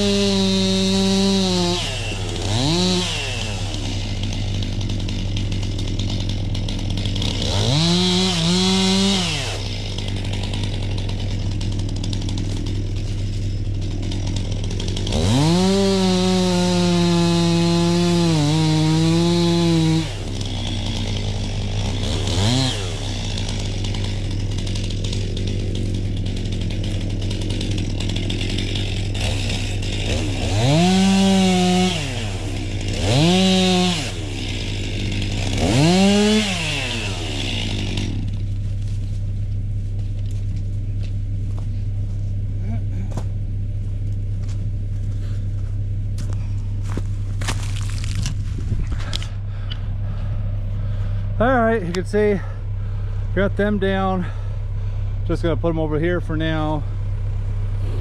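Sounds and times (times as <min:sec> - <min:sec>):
chainsaw idling and revving: 0:00.0 - 0:58.0.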